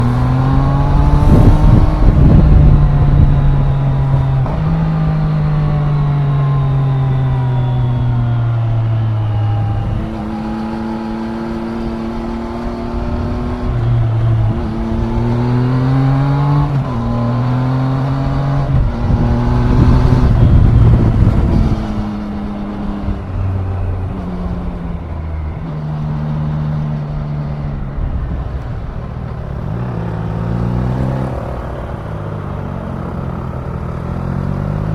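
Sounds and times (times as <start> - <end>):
motorcycle engine changing gear: 0.0 - 34.9.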